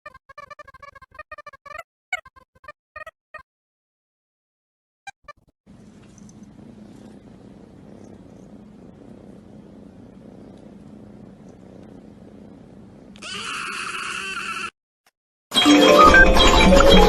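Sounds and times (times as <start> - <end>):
cat purring: 5.8 - 13.1.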